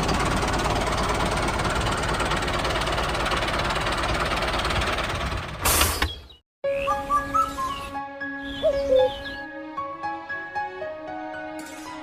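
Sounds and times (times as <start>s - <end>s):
small engine running: 0.0s - 5.7s.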